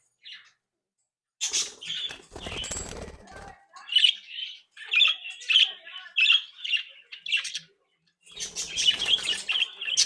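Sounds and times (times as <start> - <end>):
budgerigars chirping: 4.0 - 10.0.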